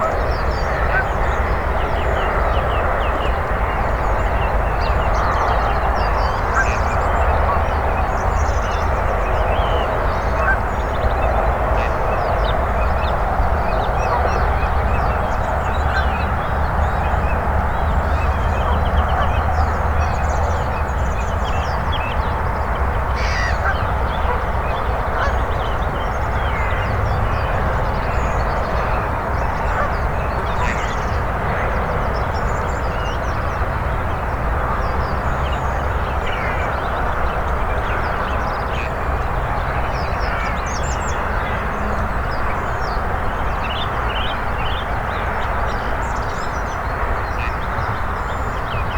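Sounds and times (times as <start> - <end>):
geese honking: 23.2 - 24.4.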